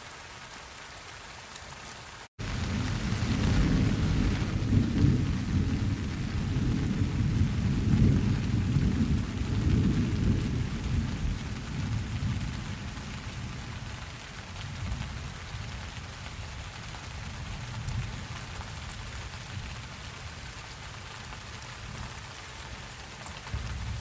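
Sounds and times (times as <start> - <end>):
steady rain: 0.0 - 24.0
thunder rolling: 2.4 - 13.6.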